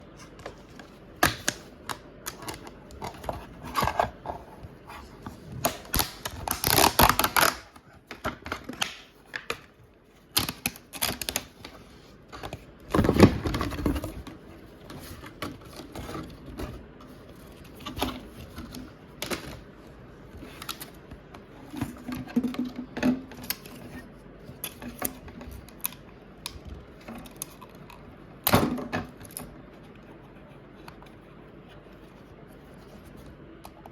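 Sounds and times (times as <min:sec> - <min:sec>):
packaging rustling: 0:02.3 - 0:09.6.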